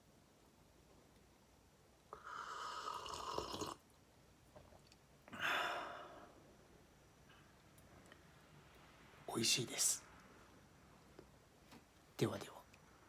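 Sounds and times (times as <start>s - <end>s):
person slurping coffee: 2.2s - 3.8s.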